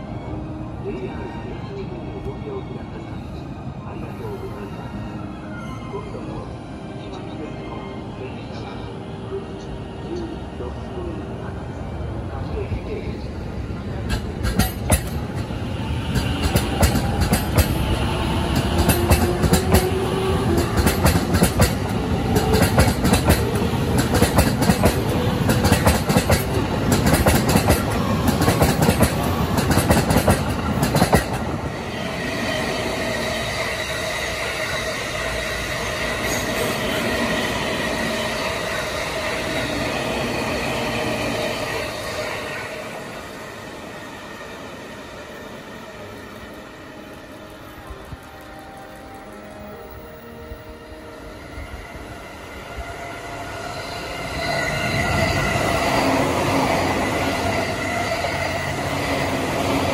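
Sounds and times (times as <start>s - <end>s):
train hum: 0.0s - 59.9s
train wheels clicking over rail joints: 14.1s - 15.5s, 16.1s - 17.8s, 20.6s - 31.4s.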